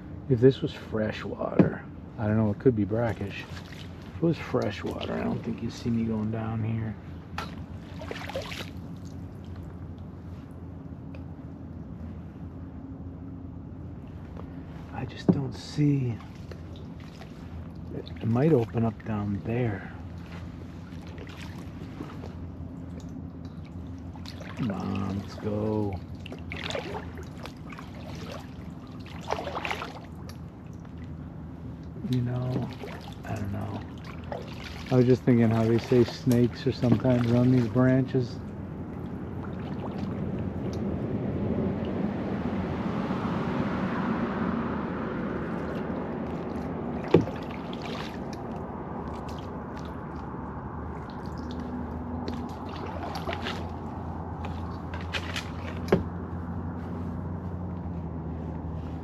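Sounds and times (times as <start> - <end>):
water trickling and dripping: 0.6 - 10.4, 14.1 - 41.0, 45.2 - 56.7
paddle splashing in water: 3.0 - 5.9, 7.3 - 9.9, 16.1 - 31.2, 32.0 - 42.1, 45.1 - 57.6.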